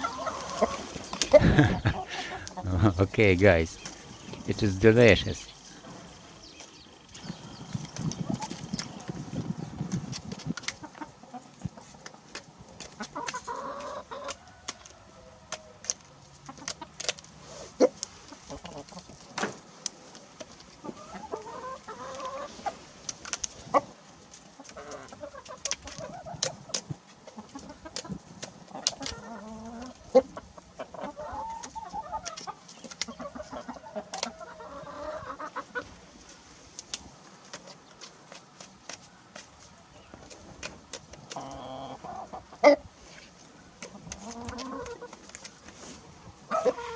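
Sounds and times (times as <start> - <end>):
rooster clucking: 0.0 - 3.9, 13.0 - 15.8, 20.8 - 22.8, 24.6 - 36.0, 43.8 - 45.2, 46.5 - 46.9.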